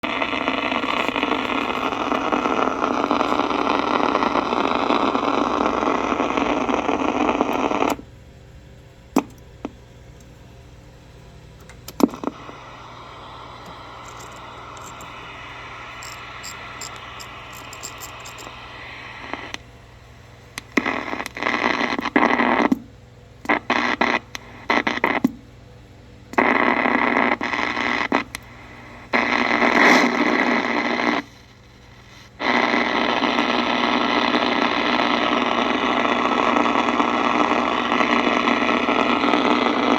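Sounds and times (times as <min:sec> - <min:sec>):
short bursts of static: 0:00.0 - 0:08.0, 0:12.0 - 0:22.8, 0:23.5 - 0:25.3, 0:26.4 - 0:39.9
radio static hissing: 0:00.0 - 0:08.3, 0:09.2 - 0:25.4, 0:26.3 - 0:39.9
clicks: 0:11.6 - 0:12.6.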